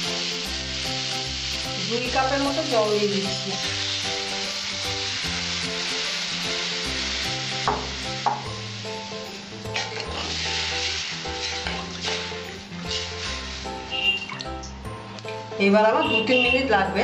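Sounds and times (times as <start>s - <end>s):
water sizzling in hot oil: 0.0s - 14.8s
soft background music: 0.0s - 17.0s
wooden spatula stirring: 9.8s - 14.1s.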